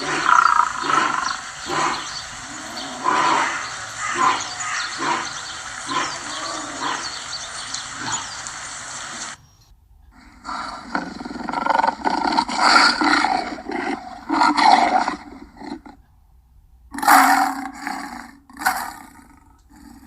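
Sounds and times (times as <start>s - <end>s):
lion roaring: 0.0s - 8.4s, 10.3s - 16.0s.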